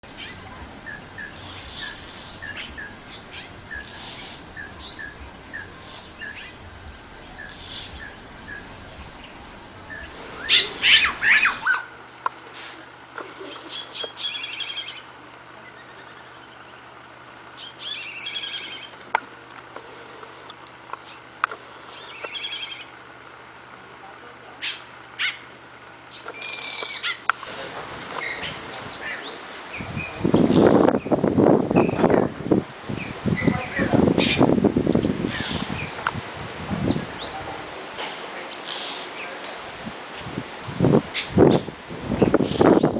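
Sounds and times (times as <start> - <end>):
bird calling: 0.0 - 11.8, 26.1 - 32.3, 35.0 - 39.2, 41.1 - 42.9.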